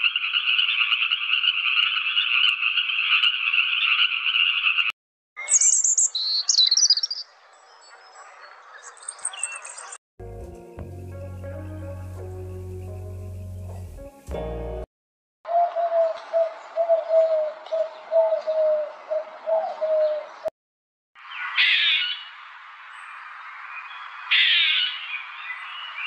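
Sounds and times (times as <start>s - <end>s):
birds chirping: 0.1s - 10.0s
background music: 10.2s - 14.9s.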